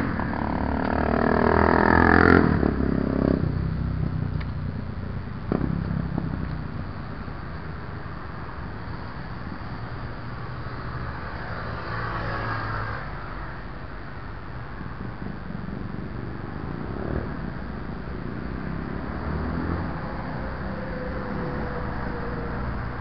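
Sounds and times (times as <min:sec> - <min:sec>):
wind on microphone: 0:14.6 - 0:19.1.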